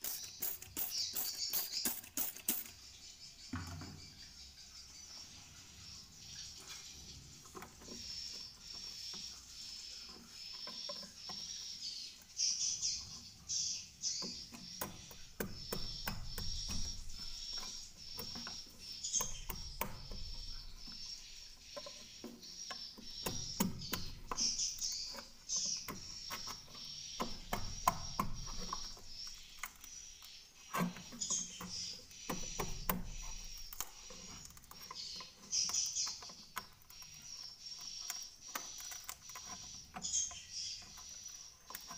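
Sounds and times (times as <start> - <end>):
sharp clicks: 0.0 - 2.8
swiftlets chirping: 0.0 - 3.1.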